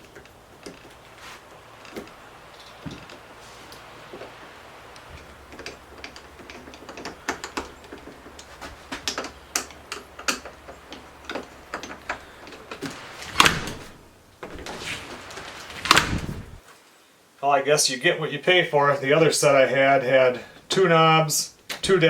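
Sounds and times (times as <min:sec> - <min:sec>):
small metal clicks and taps: 0:05.0 - 0:12.9.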